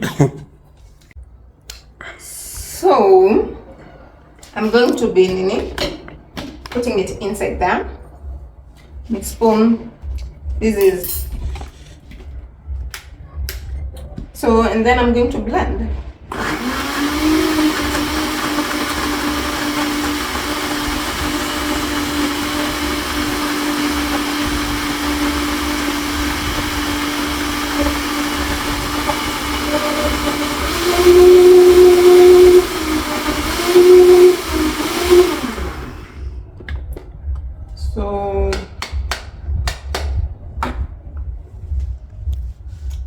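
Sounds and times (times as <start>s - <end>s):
blender motor running: 16.3s - 36.3s.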